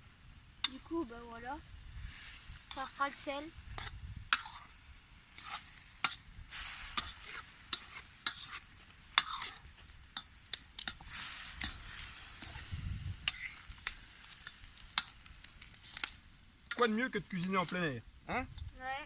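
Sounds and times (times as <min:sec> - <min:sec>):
food sizzling in a wok: 0:00.0 - 0:19.0
utensil scraping a pan: 0:03.7 - 0:15.2.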